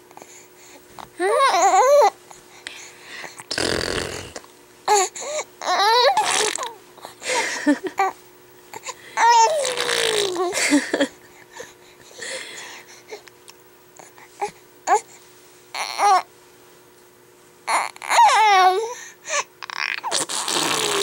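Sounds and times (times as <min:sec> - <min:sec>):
baby cooing and squealing: 0:01.2 - 0:02.2, 0:04.9 - 0:06.8, 0:09.2 - 0:10.6, 0:15.8 - 0:16.3, 0:17.7 - 0:19.0, 0:19.6 - 0:21.0.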